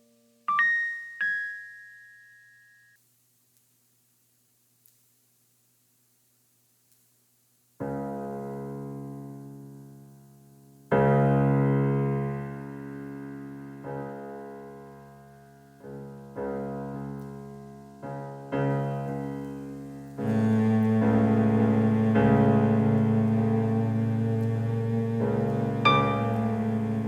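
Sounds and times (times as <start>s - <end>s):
keyboard piano chords: 0.0s - 2.9s, 10.9s - 27.0s.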